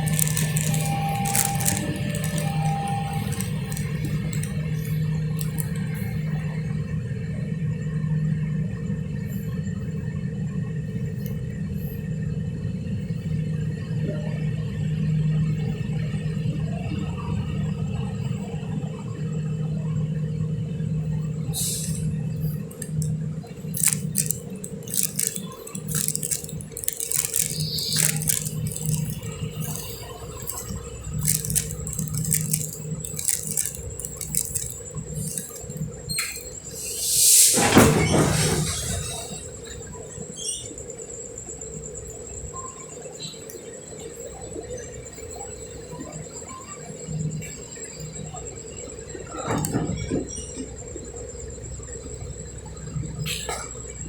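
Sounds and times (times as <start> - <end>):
diesel train engine humming: 0.0 - 7.1, 20.6 - 37.5.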